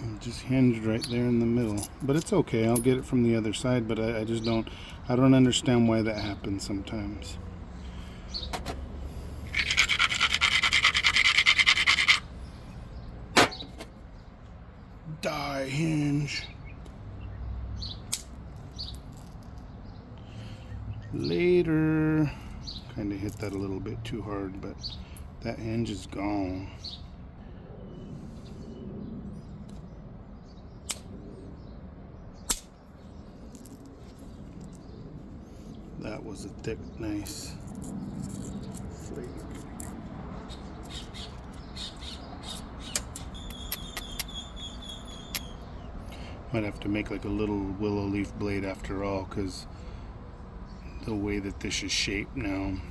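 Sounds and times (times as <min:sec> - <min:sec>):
stone scraping along stone edge: 0:09.5 - 0:12.3.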